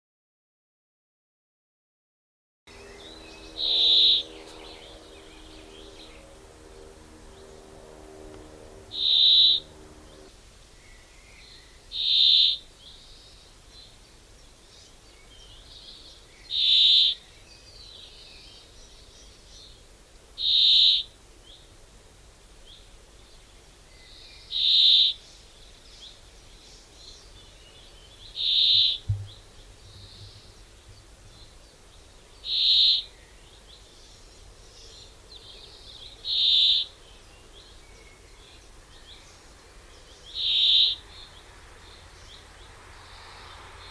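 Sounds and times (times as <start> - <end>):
faint bird chirps: 2.8 - 6.3
bird giving loud high call: 3.5 - 6.3, 7.5 - 10.3.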